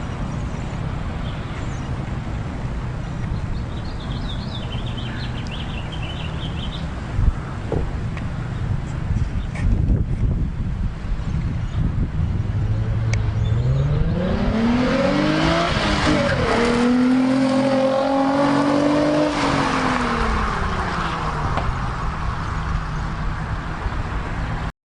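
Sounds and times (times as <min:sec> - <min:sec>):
car engine accelerating hard: 0:12.3 - 0:22.6.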